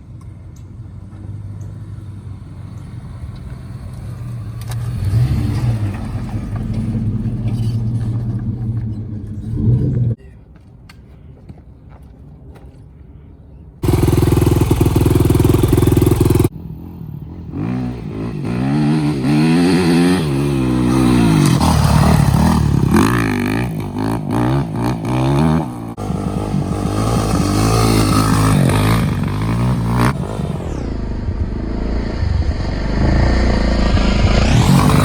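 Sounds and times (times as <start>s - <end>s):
dirt bike engine revving: 4.0s - 10.2s, 13.8s - 35.0s.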